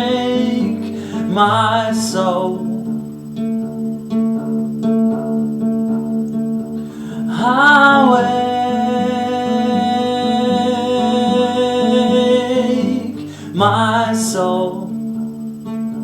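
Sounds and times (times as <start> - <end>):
acoustic guitar picking: 0.0 - 16.0
person singing long note: 7.3 - 13.8.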